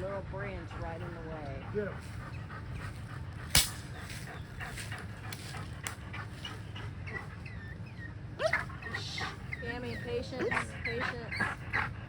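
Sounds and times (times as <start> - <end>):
dog whimpering: 6.2 - 12.0.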